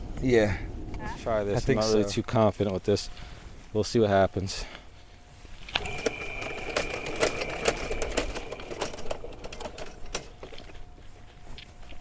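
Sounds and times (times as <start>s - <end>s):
cable clicking and clattering: 5.7s - 10.8s
motor whine: 5.7s - 10.9s.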